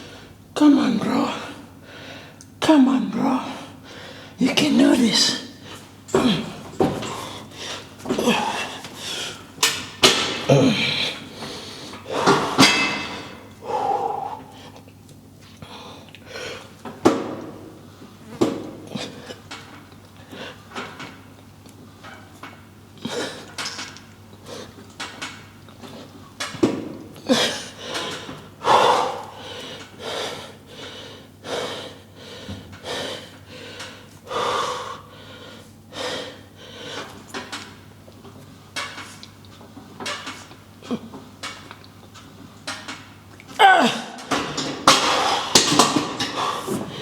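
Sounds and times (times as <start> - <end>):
man breathing hard: 3.7 - 4.4, 5.6 - 9.7, 10.5 - 14.9, 27.2 - 37.2, 44.9 - 47.0.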